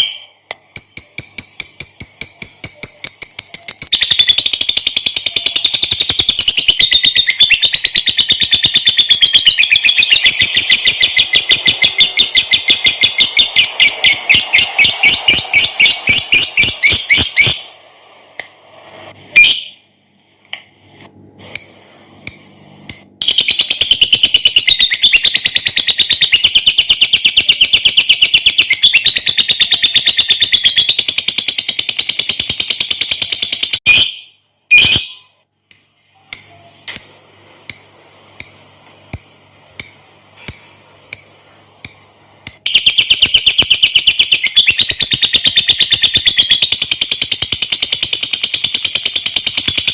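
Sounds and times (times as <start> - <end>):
bird shrill chattering song: 0.0 - 17.6, 42.6 - 49.9.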